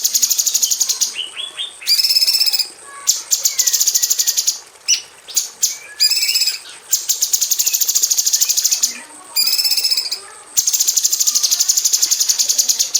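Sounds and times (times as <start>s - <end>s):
bird singing fast high notes: 0.0s - 12.9s
lower whistled bird notes: 0.0s - 12.9s.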